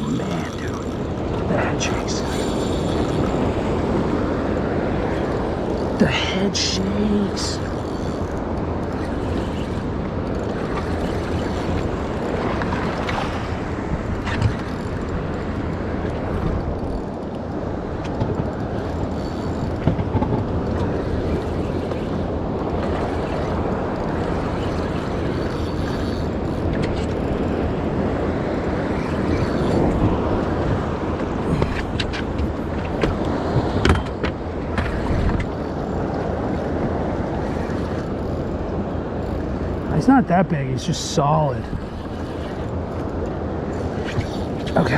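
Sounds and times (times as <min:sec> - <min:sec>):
waves washing around a boat: 0:00.0 - 0:44.9
wind rumble on microphone: 0:06.8 - 0:39.9.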